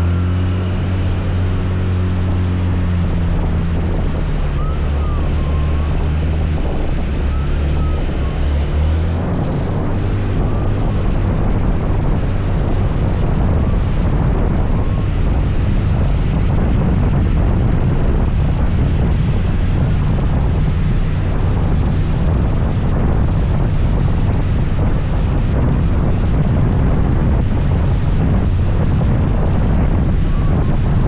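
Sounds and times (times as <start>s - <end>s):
road rush: 0.0s - 31.0s
scooter engine hum: 0.0s - 31.0s
wind buffeting microphone: 0.0s - 31.0s.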